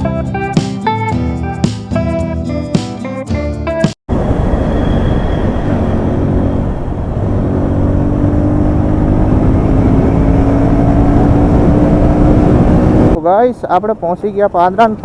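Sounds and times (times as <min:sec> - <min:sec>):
wind rush: 0:04.1 - 0:13.2
motorcycle engine running: 0:04.2 - 0:13.2.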